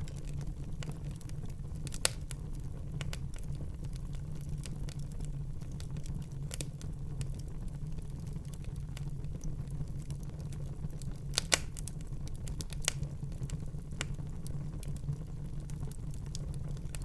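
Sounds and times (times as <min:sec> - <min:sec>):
fire crackling and popping: 0:00.0 - 0:17.0
fire flames rumbling: 0:00.0 - 0:17.0.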